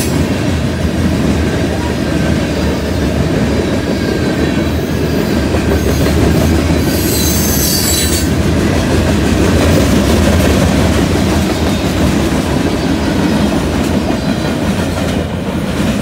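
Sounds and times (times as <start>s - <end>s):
freight train wheels clattering: 0.0s - 16.0s
high wheel squeal: 4.7s - 8.3s.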